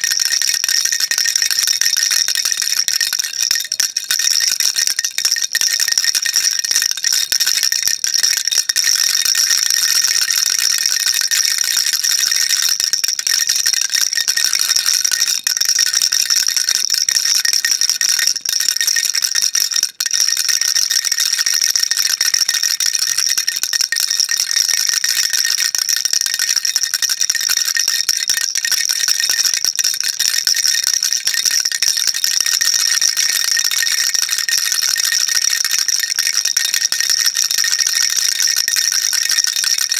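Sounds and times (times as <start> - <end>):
baby rattle shaking: 0.0 - 39.9.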